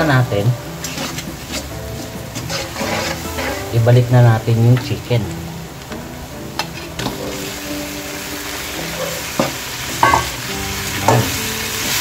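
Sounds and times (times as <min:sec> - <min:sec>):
onion and garlic sizzling in oil: 0:00.0 - 0:12.0
spoon knocking on pan: 0:08.8 - 0:10.4, 0:11.0 - 0:11.4.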